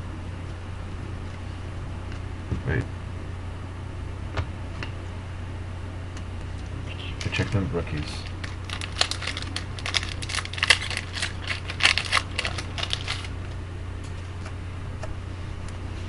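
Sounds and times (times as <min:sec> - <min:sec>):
steady low hum: 0:00.0 - 0:16.0
cards flipped and shuffled: 0:08.2 - 0:13.3.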